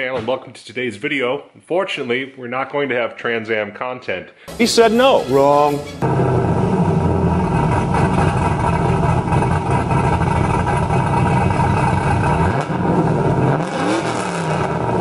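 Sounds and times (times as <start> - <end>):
vee eight engine idling: 5.9 - 12.3.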